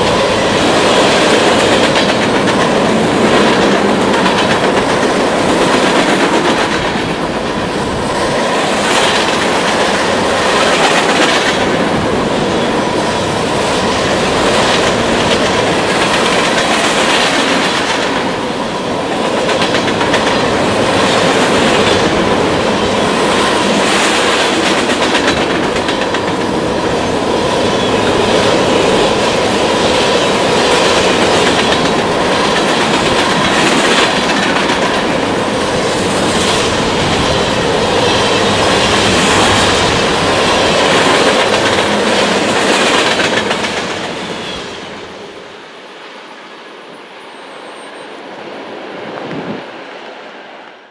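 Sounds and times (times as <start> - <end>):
train wheels rumbling over rails: 0.0 - 46.1
faint wheel squeal: 46.7 - 48.3.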